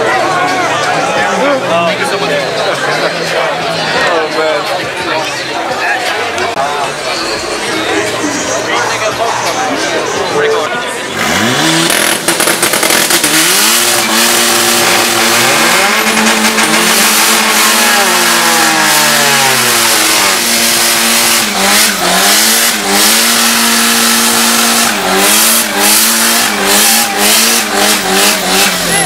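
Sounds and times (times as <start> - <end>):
tyres spinning: 2.4 - 29.0
car engine on launch limiter: 6.8 - 29.0
exhaust pops and bangs: 11.3 - 28.7.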